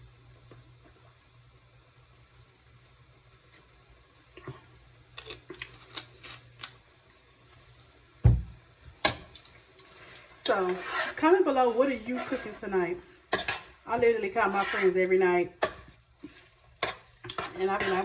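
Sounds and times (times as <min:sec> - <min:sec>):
loud thump of pot set down: 0:08.2 - 0:08.6.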